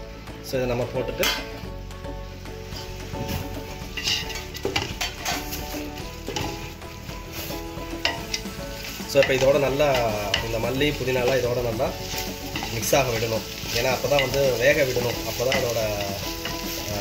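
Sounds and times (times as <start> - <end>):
faint background music: 0.0 - 17.0
food sizzling in a pot: 0.0 - 17.0
ladle scraping a pot: 2.7 - 6.6.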